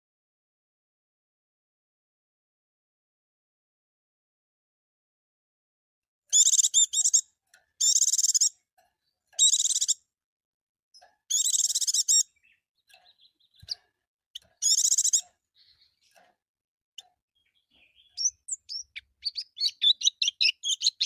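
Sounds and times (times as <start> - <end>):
bird warbling song: 6.3 - 10.0, 11.0 - 16.4, 17.0 - 21.0.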